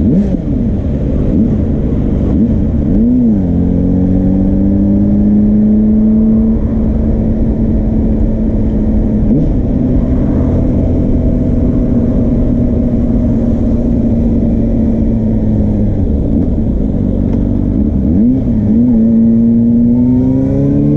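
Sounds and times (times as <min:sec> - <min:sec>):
motorcycle engine at high revs: 0:00.0 - 0:20.9.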